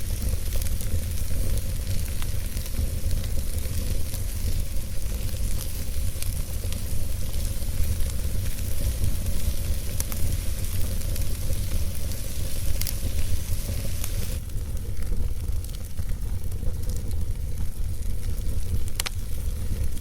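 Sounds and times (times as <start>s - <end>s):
campfire crackling: 0.0s - 20.0s
fire popping: 0.0s - 20.0s
low rumble: 0.1s - 14.7s.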